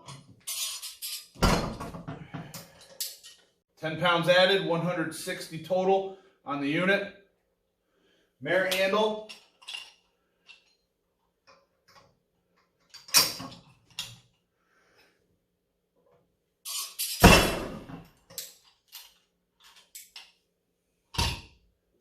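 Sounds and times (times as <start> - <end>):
heavy thud: 17.2 - 18.0.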